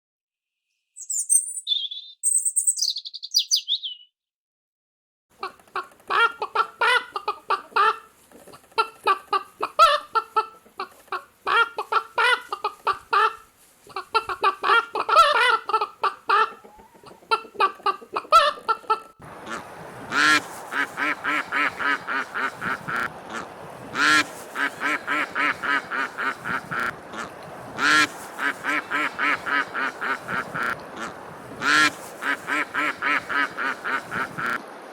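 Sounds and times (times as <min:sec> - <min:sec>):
chickens clucking: 0:05.4 - 0:34.6
ducks quacking: 0:05.4 - 0:34.6
background hiss: 0:06.4 - 0:18.2, 0:19.2 - 0:34.6.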